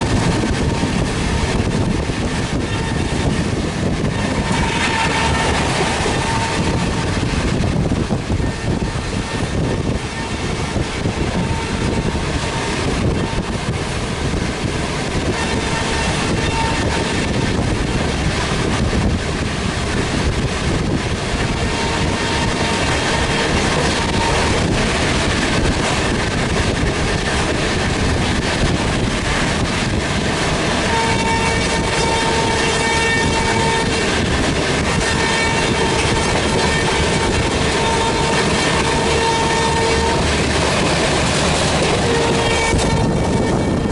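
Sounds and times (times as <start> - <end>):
train wheels rumbling on track: 0.0 - 43.9
train horn blasts: 0.3 - 13.8, 15.2 - 18.2, 21.4 - 25.2, 30.6 - 43.9.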